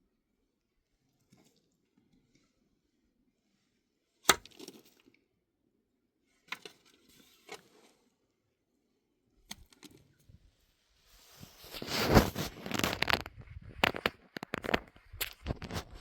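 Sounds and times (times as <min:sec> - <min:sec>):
rustling and crunching: 0:11.1 - 0:16.0.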